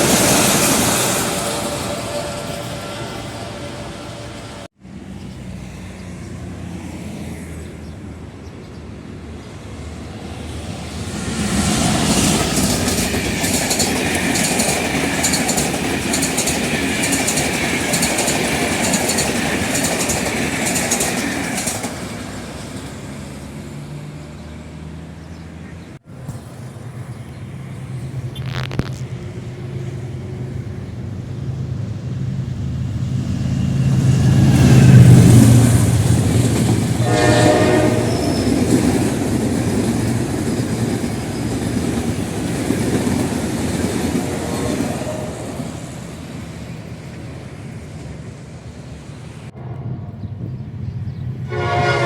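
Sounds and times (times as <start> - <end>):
train wheels clattering over rail joints: 11.6 - 23.3, 34.9 - 46.1.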